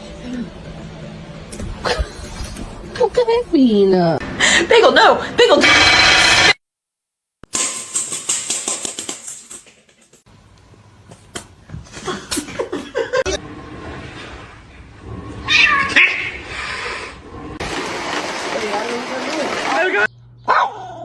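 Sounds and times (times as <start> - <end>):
cat meowing: 15.4 - 16.4.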